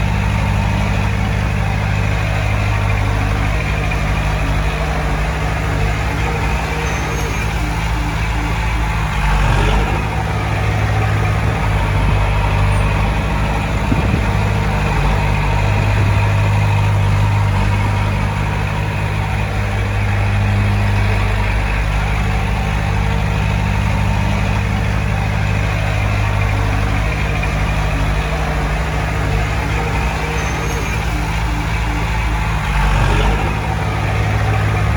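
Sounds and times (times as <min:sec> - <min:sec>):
heavy machinery diesel engine running: 0:00.0 - 0:34.9.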